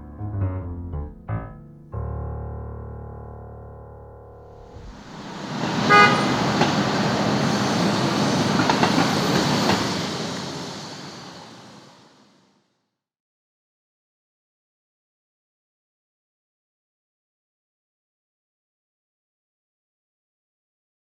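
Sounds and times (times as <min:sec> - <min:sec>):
rushing vehicle noise: 0:04.5 - 0:12.0
short horn toot: 0:05.9 - 0:06.5.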